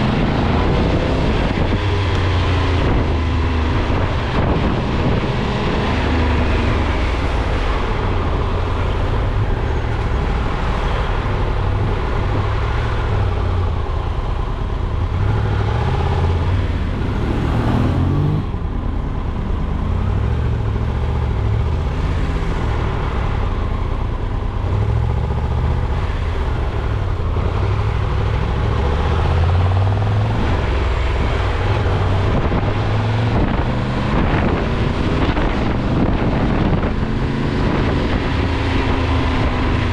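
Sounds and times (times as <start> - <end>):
vehicle engine and road noise: 0.0 - 39.9
rising pitch sweep: 15.2 - 19.8.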